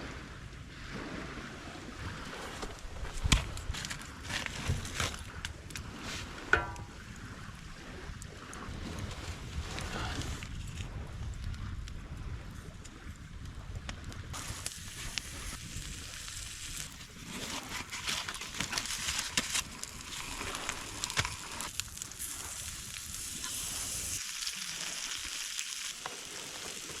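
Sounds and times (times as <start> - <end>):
food sizzling on a griddle: 14.4 - 17.6, 18.6 - 27.0.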